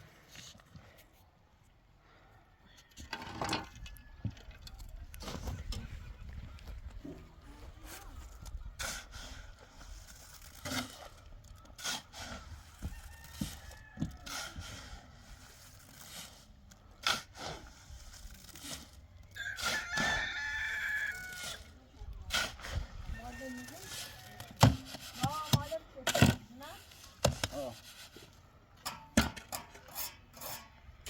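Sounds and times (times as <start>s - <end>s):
rooster crowing: 19.4s - 21.4s.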